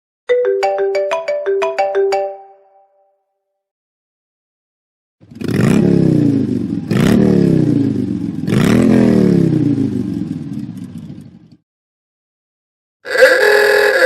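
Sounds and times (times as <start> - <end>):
recorded motorcycle engine revving: 5.2 - 11.6.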